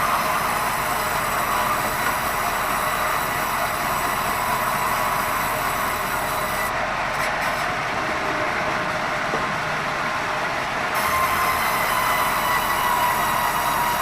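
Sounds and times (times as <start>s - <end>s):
band saw cutting wood: 0.0s - 7.8s, 11.0s - 14.0s.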